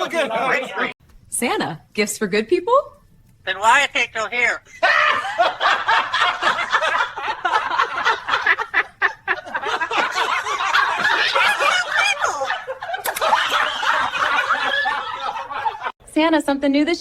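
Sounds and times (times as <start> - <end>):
people laughing hard: 0.0 - 1.0, 4.7 - 16.0.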